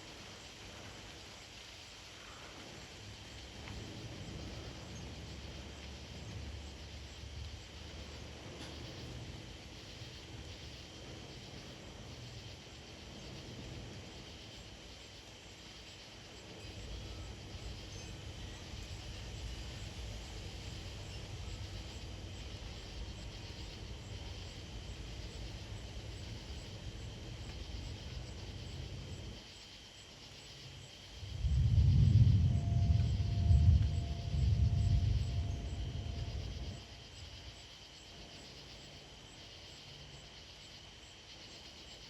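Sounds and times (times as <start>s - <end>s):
high chorus of insects: 0.0s - 42.0s
wind buffeting microphone: 31.2s - 37.4s.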